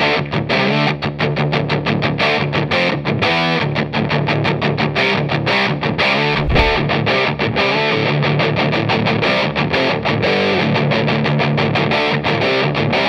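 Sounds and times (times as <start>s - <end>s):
low thump: 6.4s - 6.9s.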